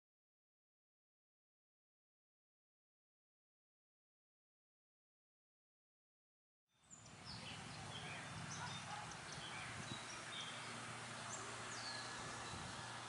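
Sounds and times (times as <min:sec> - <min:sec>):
small birds chirping: 0:06.8 - 0:13.0.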